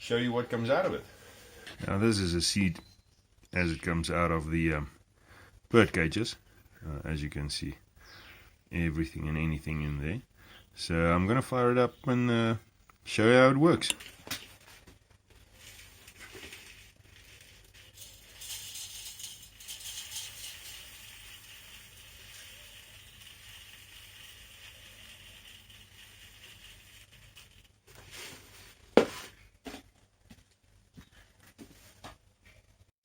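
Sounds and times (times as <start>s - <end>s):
birdseed pouring: 15.5s - 28.8s.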